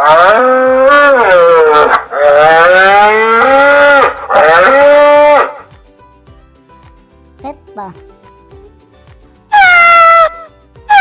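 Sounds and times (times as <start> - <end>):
bull mooing: 0.0 - 5.7.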